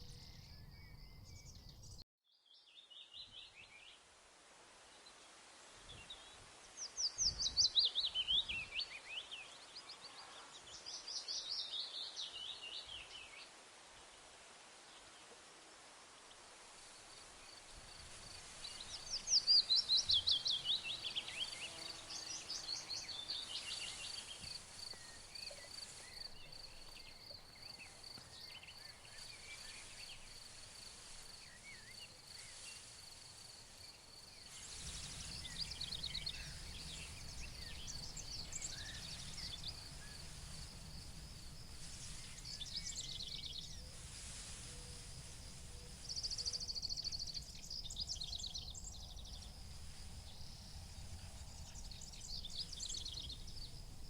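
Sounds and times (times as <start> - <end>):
songbirds singing trills: 0.0 - 3.9, 17.5 - 54.0
low steady rustling: 12.2 - 54.0.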